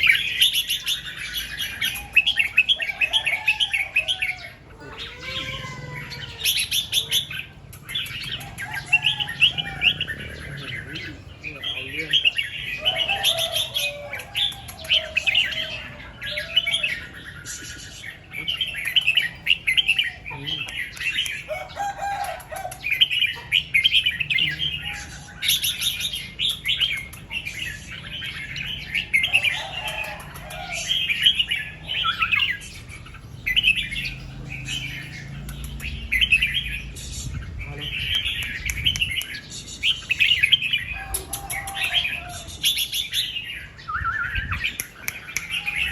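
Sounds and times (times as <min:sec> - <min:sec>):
lower-pitched bird phrase: 0:03.4 - 0:07.6.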